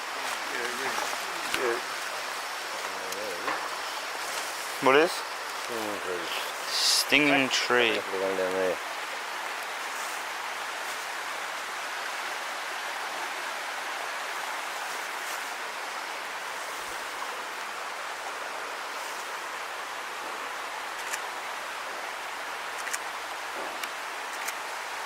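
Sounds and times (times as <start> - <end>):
rushing water: 0.0 - 25.0.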